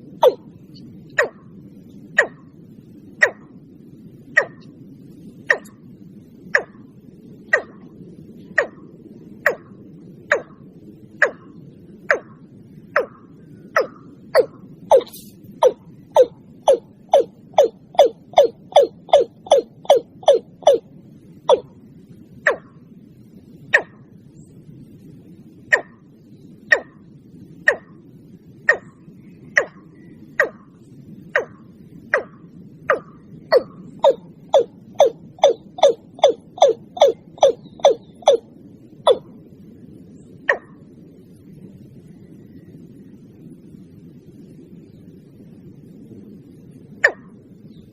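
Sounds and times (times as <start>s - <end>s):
low steady background noise: 0.0s - 47.9s
low steady hiss: 0.0s - 47.9s
bird calling descending notes: 13.8s - 20.9s, 32.9s - 38.5s.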